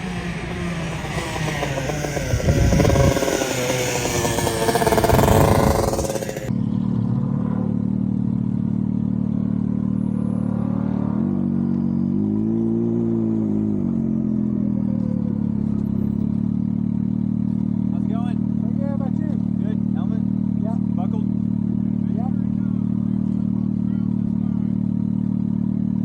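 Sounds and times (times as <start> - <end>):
wind and road noise: 0.0 - 17.9
engine revving and idling: 0.0 - 26.0.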